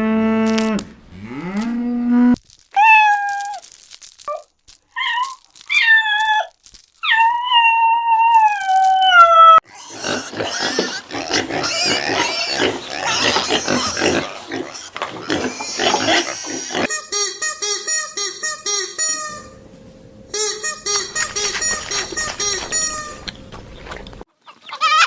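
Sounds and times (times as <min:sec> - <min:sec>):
farm animals calling: 0:09.6 - 0:19.6, 0:20.4 - 0:25.0.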